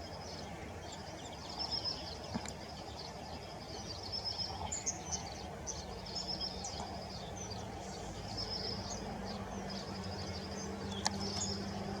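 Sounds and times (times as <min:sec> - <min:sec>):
birds chirping: 0:00.0 - 0:12.0
outdoor background noise: 0:00.0 - 0:12.0.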